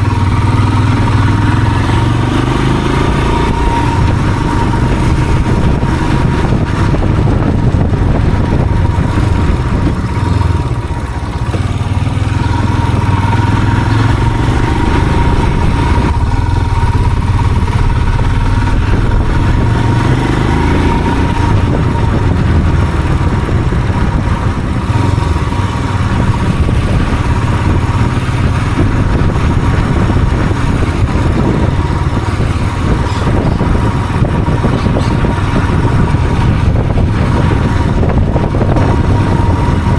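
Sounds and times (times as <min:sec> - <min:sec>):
vehicle engine running: 0:00.0 - 0:39.9
thin steady whine: 0:14.6 - 0:21.9.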